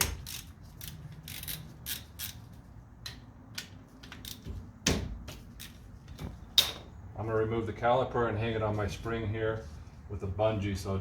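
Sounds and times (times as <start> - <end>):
socket wrench clicks and scrapes: 0.0 - 4.5.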